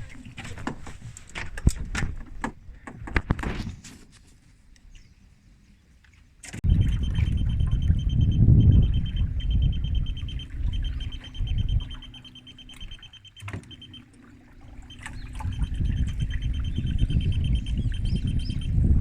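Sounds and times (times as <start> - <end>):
wind buffeting microphone: 6.6 - 13.0, 14.4 - 19.0
high-pitched pulsing tone: 6.6 - 19.0.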